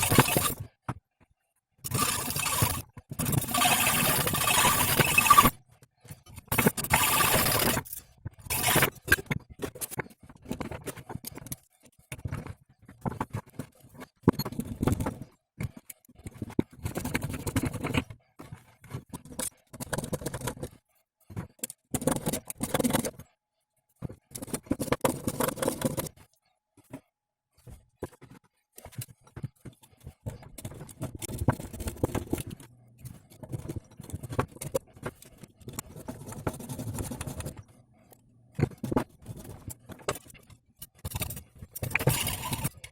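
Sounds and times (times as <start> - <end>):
metal scraping and clicking: 0.0 - 0.7, 1.8 - 5.6, 6.2 - 20.8, 28.0 - 42.9.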